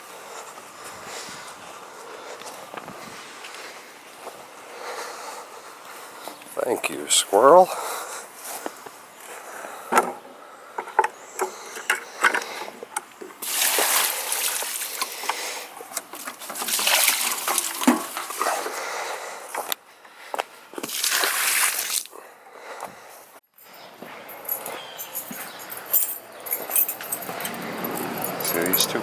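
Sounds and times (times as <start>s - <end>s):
water splashing on garden: 13.4s - 18.8s, 20.8s - 22.2s.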